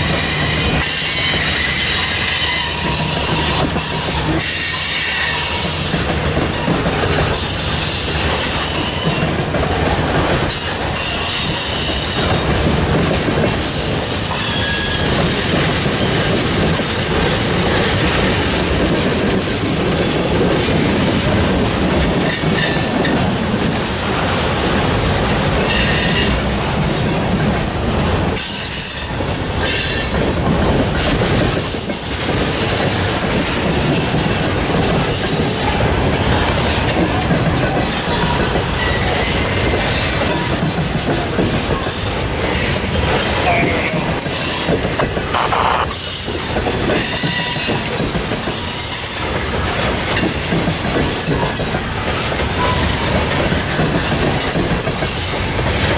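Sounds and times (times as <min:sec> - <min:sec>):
train wheels squealing: 0:00.0 - 0:09.3, 0:10.4 - 0:12.4, 0:13.6 - 0:18.9, 0:28.4 - 0:30.2, 0:37.9 - 0:40.7, 0:45.9 - 0:50.4
freight train rumble and rail clatter: 0:00.0 - 0:55.9.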